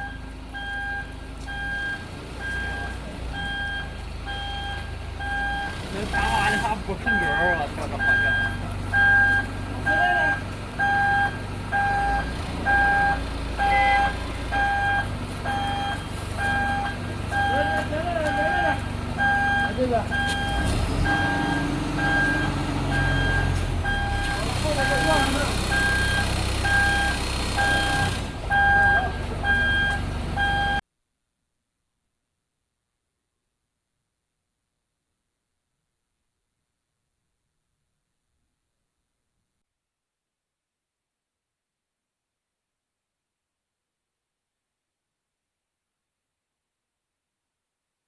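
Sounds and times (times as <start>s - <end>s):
engine droning: 0.0s - 30.8s
reversing alarm beeping: 0.0s - 30.8s.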